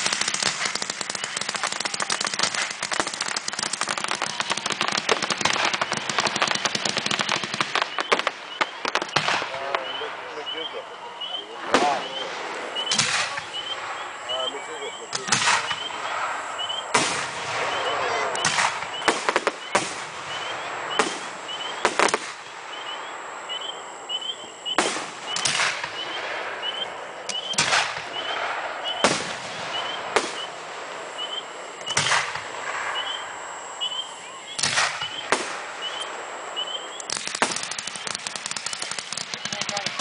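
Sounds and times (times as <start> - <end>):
fireworks bangs: 0.0 - 40.0
fireworks crackling: 0.0 - 40.0.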